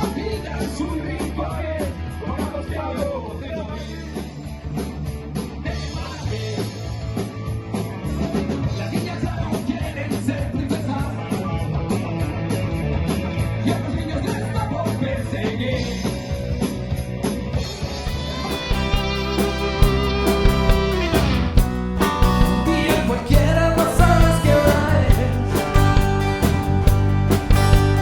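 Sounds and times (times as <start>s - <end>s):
rock band playing live: 0.0s - 28.0s
steady drum beat: 13.8s - 28.0s.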